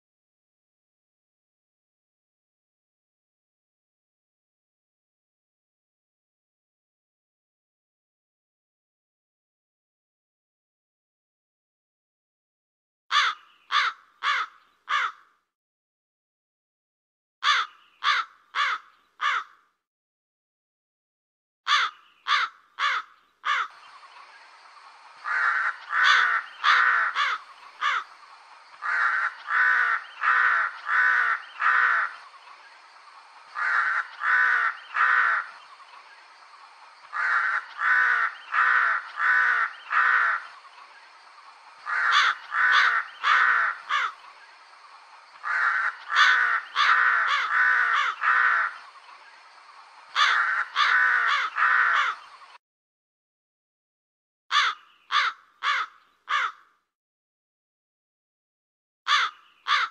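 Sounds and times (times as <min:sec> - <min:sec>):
crow cawing: 0:13.1 - 0:15.3, 0:17.4 - 0:19.7, 0:21.7 - 0:23.8, 0:25.2 - 0:32.3, 0:33.5 - 0:35.6, 0:37.1 - 0:40.6, 0:41.8 - 0:44.2, 0:45.4 - 0:48.8, 0:50.1 - 0:52.3, 0:54.5 - 0:56.8, 0:59.1 - 0:59.9
faint steady hiss: 0:23.7 - 0:52.6.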